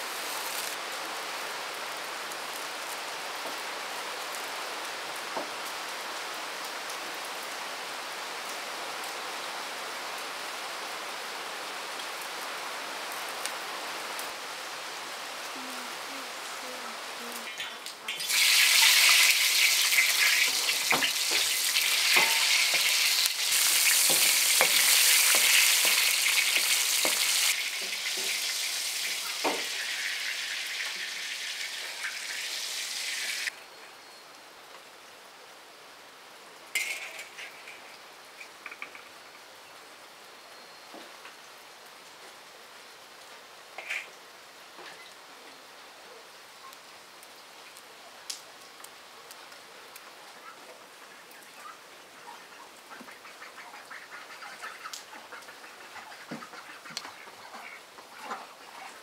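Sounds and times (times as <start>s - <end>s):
food sizzling in a pan: 0.0s - 0.8s, 17.4s - 33.5s.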